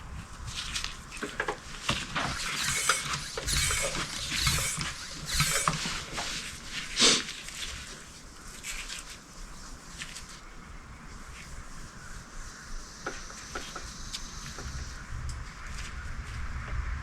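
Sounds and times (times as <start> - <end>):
short scraping on metal: 2.2 - 6.4.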